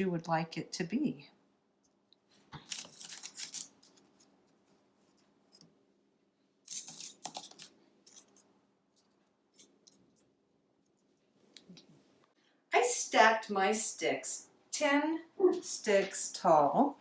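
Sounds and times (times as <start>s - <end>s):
wooden sticks scraping and clicking: 6.7s - 10.3s.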